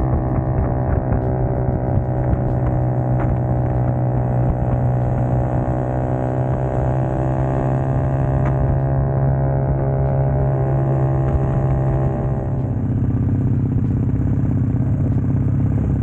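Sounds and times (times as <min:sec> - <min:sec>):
motorcycle engine running steadily: 0:00.0 - 0:16.0.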